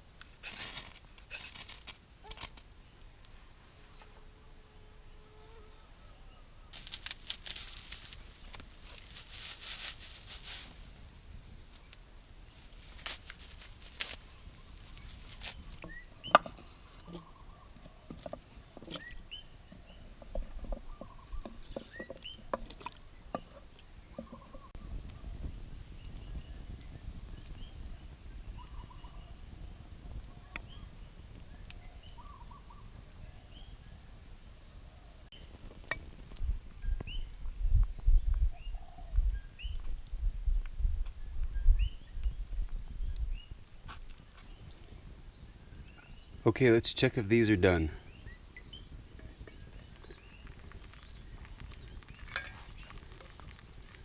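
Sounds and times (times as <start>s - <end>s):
birds chirping: 14.2s - 25.3s, 25.9s - 34.0s, 41.2s - 54.0s.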